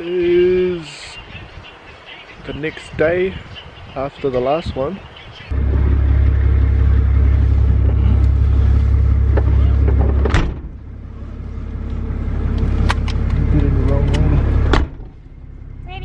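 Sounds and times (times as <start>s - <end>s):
car driving rumble: 5.5s - 16.0s.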